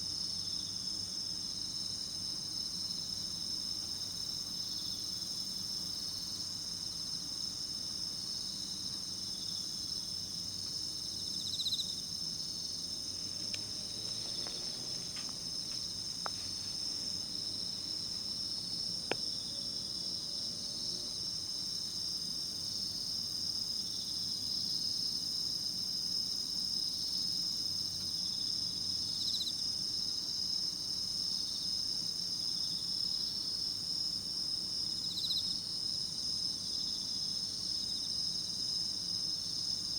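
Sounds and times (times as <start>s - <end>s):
insect chirping: 9.4s - 23.2s.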